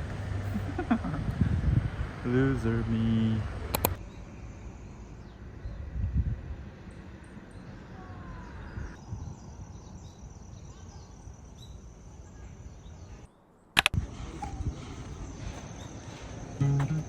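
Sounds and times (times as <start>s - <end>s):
outdoor noise bed: 0.0s - 17.0s
sharp loud clicks: 3.7s - 4.0s, 13.8s - 14.0s
faint chirps: 3.9s - 17.0s.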